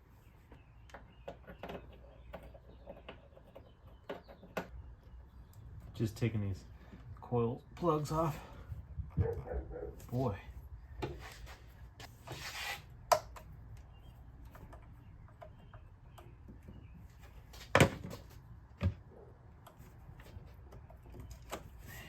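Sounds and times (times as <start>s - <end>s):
ignition coils clicking and knocking: 13.1s - 21.9s.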